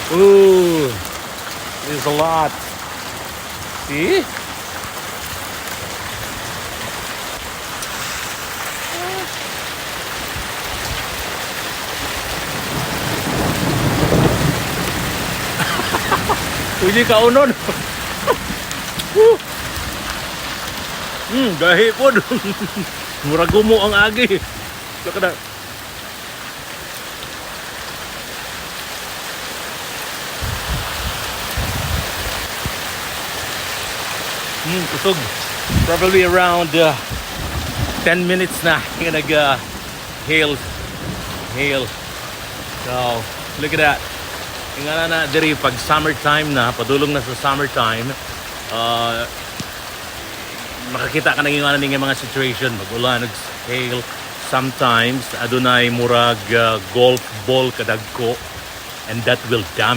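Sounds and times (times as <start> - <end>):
hail and rain falling: 0.0 - 59.9
low thumps: 23.4 - 24.2.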